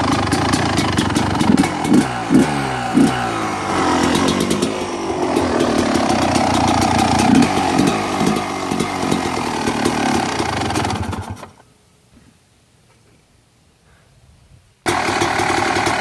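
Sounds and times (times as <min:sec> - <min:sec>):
two-stroke engine revving: 0:00.0 - 0:11.6, 0:14.9 - 0:16.0.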